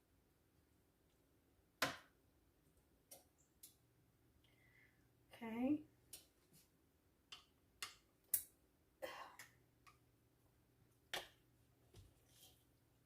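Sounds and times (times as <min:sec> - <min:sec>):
faint kitchen clicks and taps: 0:01.8 - 0:04.6, 0:06.0 - 0:10.2.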